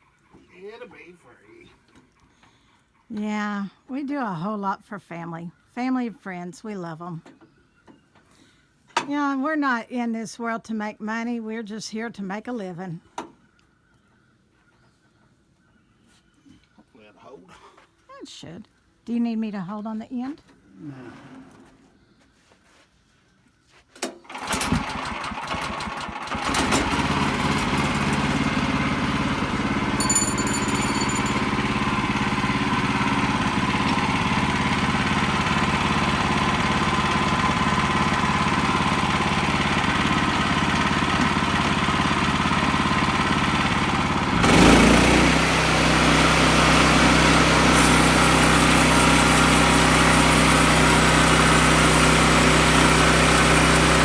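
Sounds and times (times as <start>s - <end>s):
sawmill engine running: 24.3s - 54.0s.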